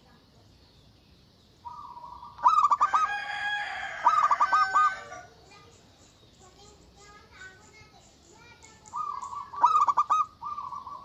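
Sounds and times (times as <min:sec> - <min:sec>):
dove cooing: 0:01.6 - 0:05.6, 0:08.4 - 0:11.0
rooster crowing: 0:02.5 - 0:05.4.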